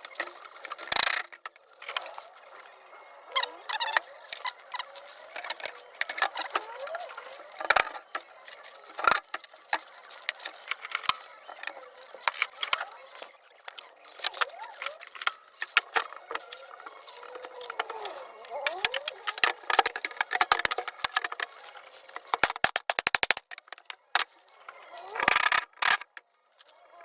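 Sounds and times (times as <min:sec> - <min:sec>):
metal parts and tools clinking: 0:07.4 - 0:24.0.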